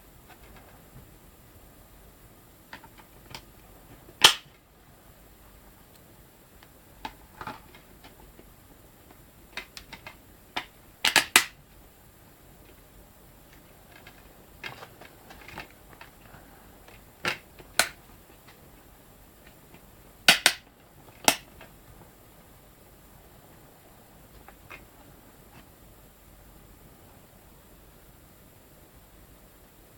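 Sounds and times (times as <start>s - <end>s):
packaging clicks and snaps: 4.2s - 4.5s, 9.6s - 11.6s, 13.5s - 18.6s, 19.4s - 21.7s.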